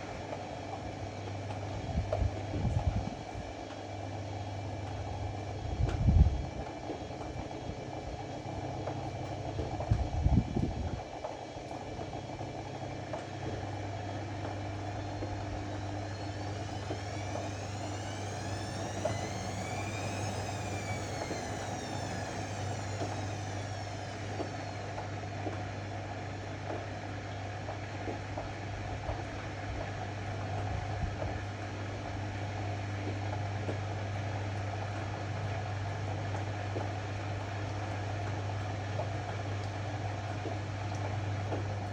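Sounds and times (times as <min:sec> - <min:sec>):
washer-dryer motor hum: 0:00.0 - 0:41.9
faint whine: 0:13.8 - 0:25.4.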